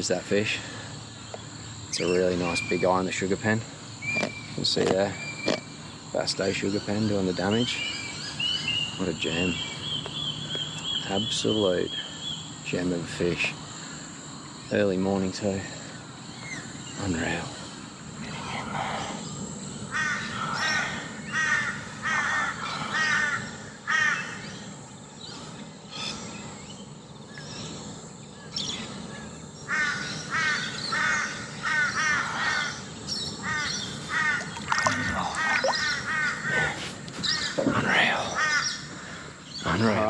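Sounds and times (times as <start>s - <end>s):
crows cawing: 19.9s - 24.6s, 29.7s - 40.0s.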